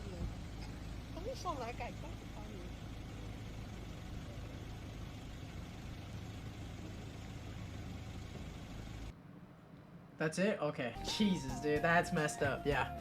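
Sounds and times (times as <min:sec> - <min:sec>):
steady low rumble with hiss: 0:00.0 - 0:13.0.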